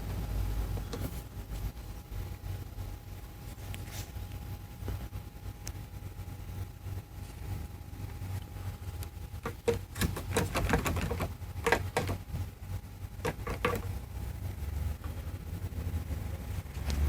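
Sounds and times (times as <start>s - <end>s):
plastic trim panel rattling: 9.5s - 12.2s.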